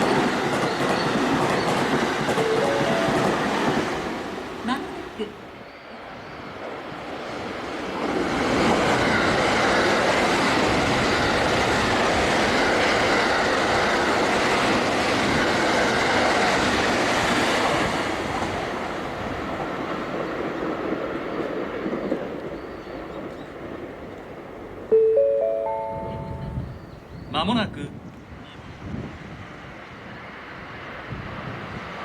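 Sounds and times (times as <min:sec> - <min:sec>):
electric train passing at high speed: 0:00.0 - 0:32.0.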